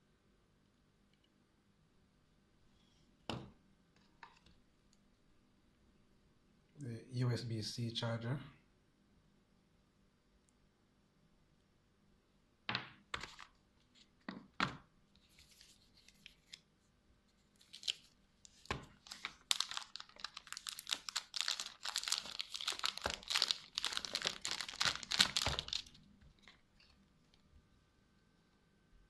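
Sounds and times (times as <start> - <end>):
plastic packaging crinkling and tearing: 17.6 - 27.0.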